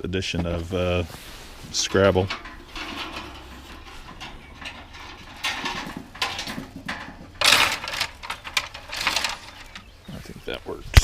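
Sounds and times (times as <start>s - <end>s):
small objects rattling: 1.3s - 10.1s.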